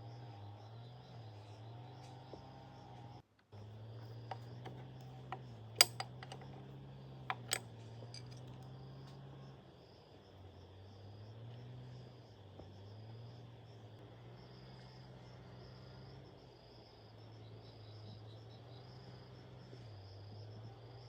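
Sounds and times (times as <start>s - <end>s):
insects chirring: 0.0s - 21.0s
sharp clicks and clinks: 4.2s - 8.7s.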